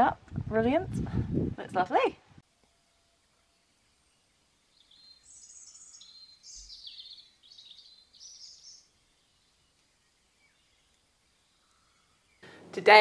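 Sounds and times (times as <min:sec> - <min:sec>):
songbird chirping and trilling: 0:02.6 - 0:13.0.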